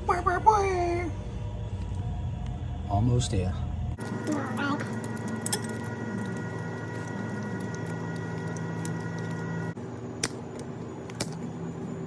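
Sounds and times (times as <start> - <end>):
electric motor whining: 4.0 - 9.8.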